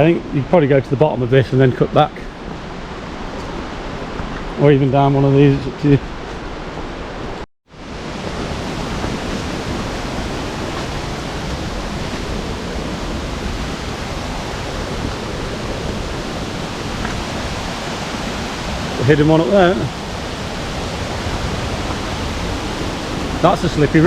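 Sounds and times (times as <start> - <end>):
waterfall roaring: 1.6 - 24.0.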